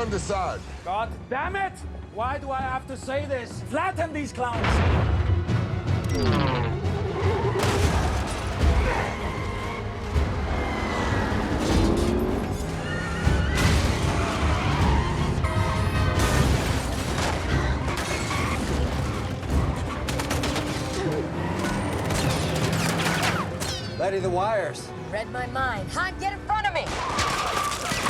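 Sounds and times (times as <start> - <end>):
driving film score: 0.0 - 28.0
vehicle engines rumbling: 8.3 - 16.2.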